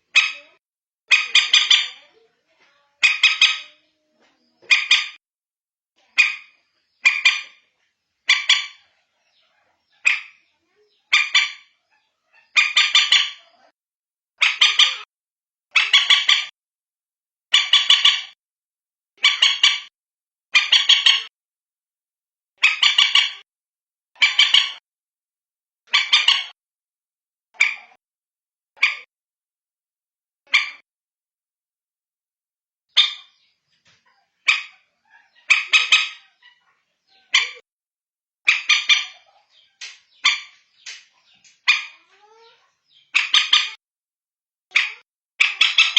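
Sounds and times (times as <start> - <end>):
moorhen harsh calls: 3.0 - 3.8, 6.2 - 7.7, 34.4 - 37.6, 38.5 - 43.8, 44.8 - 45.9.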